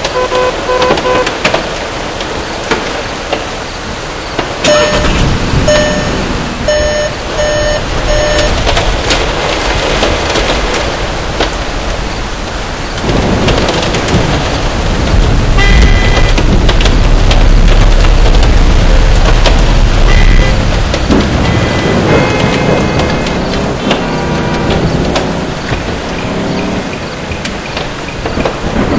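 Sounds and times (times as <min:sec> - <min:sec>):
heavy rain and hail hitting car: 0:00.0 - 0:28.9
pitched ding: 0:04.7 - 0:06.1
deep rumble: 0:04.7 - 0:28.9.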